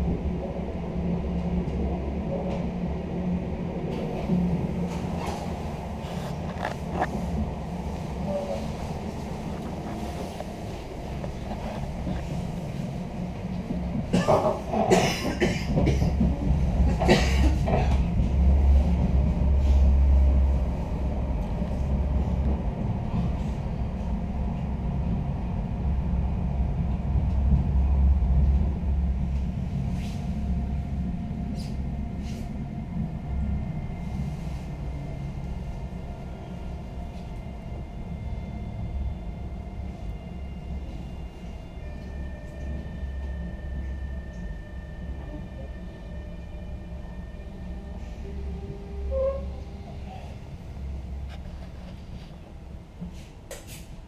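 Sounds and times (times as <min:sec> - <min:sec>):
train carriage rumble: 0:00.0 - 0:54.0.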